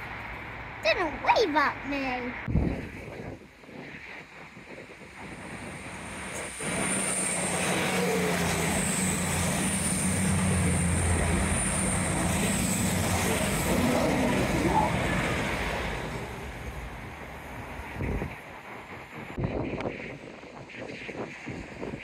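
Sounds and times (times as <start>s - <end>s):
diesel train engine drone: 0.0s - 22.0s
high whine: 0.0s - 22.0s.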